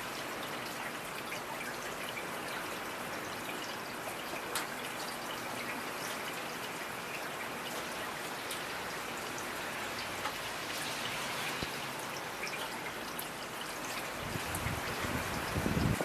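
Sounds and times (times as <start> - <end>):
raindrops pattering close by: 0.0 - 16.0
steady rain falling: 0.0 - 16.0.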